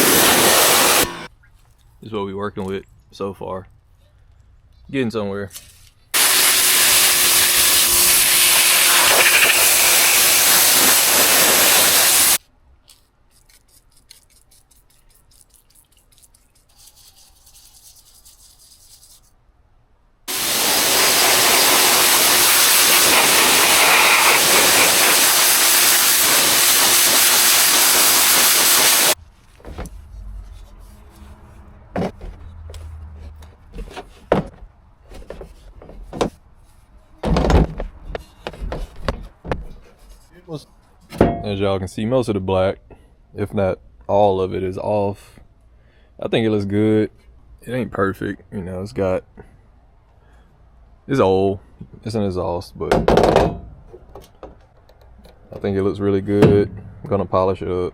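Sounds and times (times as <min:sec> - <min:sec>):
hissing spray: 0:00.0 - 0:01.3, 0:06.2 - 0:12.4, 0:20.3 - 0:29.2
handling noise: 0:29.2 - 0:40.3.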